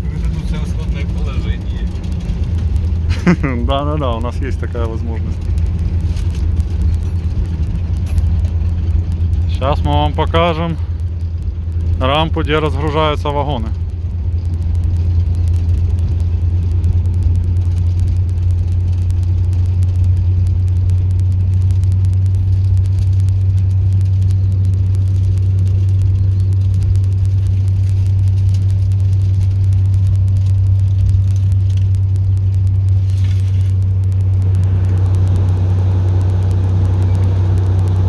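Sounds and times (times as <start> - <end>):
locomotive diesel engine drone: 0.0 - 38.0.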